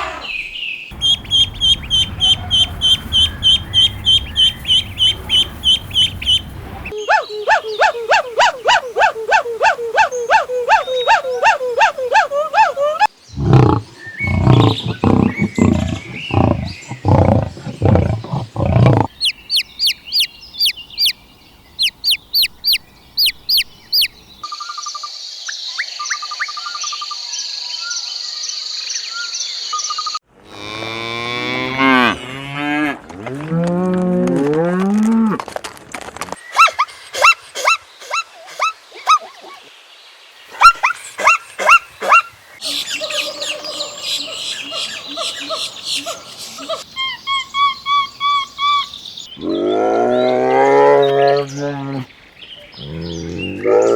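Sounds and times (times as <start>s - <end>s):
rapid high chirps: 0.9s - 13.1s, 14.3s - 21.2s, 21.8s - 24.2s
low grunting pulses: 13.3s - 19.1s, 52.8s - 53.9s
cow mooing: 13.4s - 19.1s, 30.5s - 35.1s, 52.8s - 53.9s.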